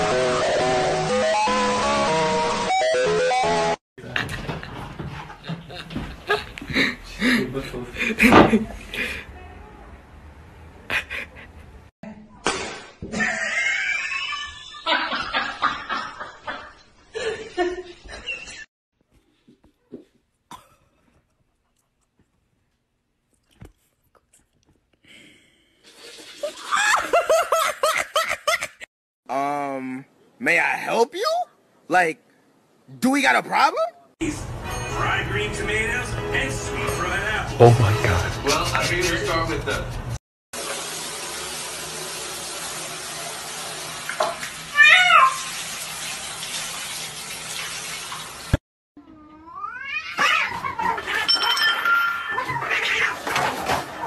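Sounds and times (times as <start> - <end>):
person laughing hard: 10.9 - 11.6
shower water running into bucket: 25.8 - 27.2, 40.6 - 48.6
cat yowling: 44.7 - 45.5, 49.2 - 53.2.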